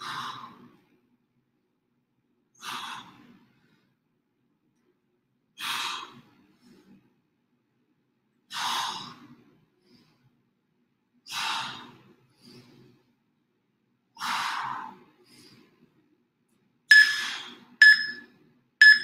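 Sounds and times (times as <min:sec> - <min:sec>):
short sharp timer beeps: 0:16.9 - 0:18.2.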